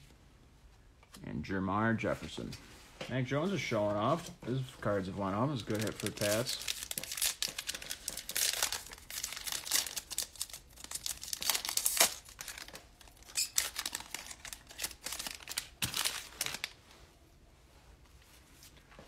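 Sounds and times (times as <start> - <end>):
cellophane wrapper crinkling and tearing: 5.5 - 16.8.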